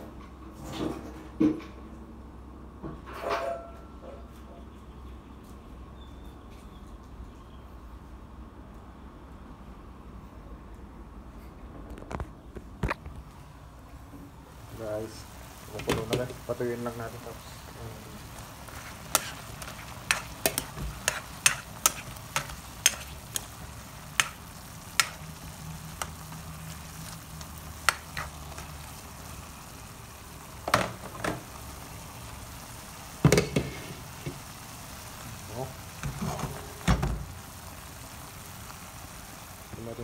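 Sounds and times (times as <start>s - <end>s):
meat sizzling in a wok: 14.5s - 40.0s
utensil clicking against pan: 25.0s - 25.2s.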